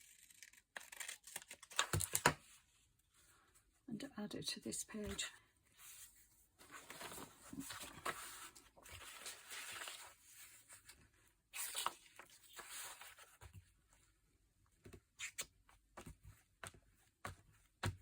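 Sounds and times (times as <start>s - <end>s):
paper rustling and scraping: 5.8s - 11.0s, 11.6s - 13.6s.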